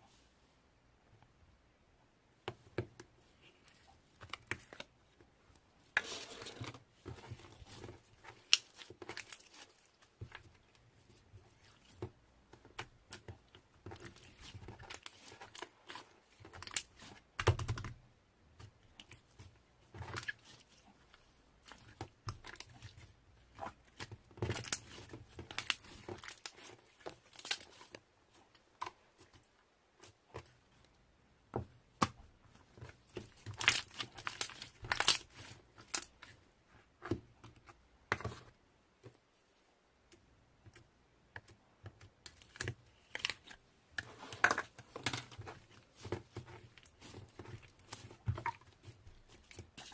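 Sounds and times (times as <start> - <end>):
slime squishing and crackling: 5.9 - 29.4, 31.9 - 36.4, 41.9 - 49.9.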